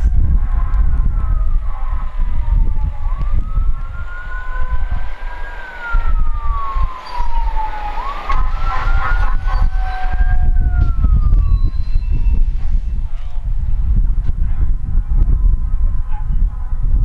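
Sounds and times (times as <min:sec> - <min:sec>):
fire truck siren wailing: 0:00.0 - 0:13.4
heavy low rumble: 0:00.0 - 0:17.0
second siren sliding down: 0:01.0 - 0:13.0.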